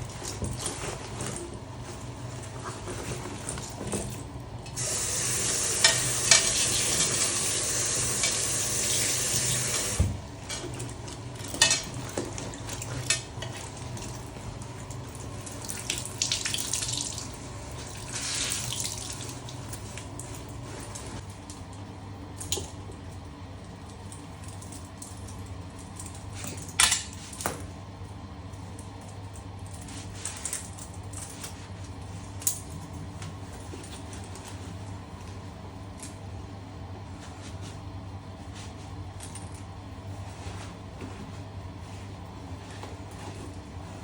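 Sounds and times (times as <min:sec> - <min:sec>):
water running from a tap: 0:04.8 - 0:10.1, 0:14.8 - 0:20.4.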